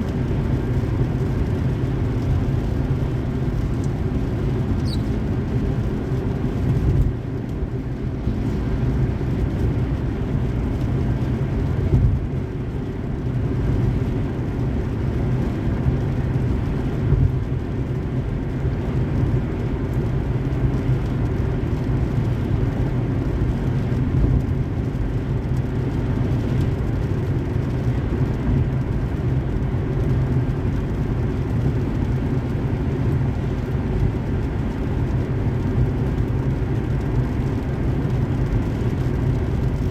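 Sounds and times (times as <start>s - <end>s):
car driving on highway: 0.0s - 39.9s.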